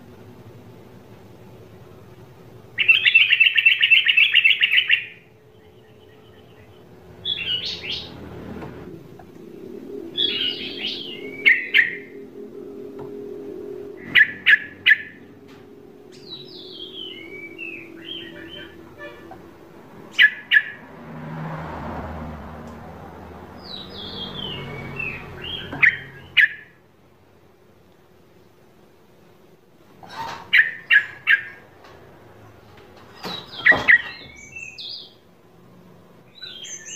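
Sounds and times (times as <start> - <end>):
low steady hum: 0.0 - 33.0
bird chirping: 2.7 - 8.3, 9.2 - 20.9, 23.6 - 26.7, 30.1 - 31.7, 33.1 - 35.2, 36.3 - 36.9.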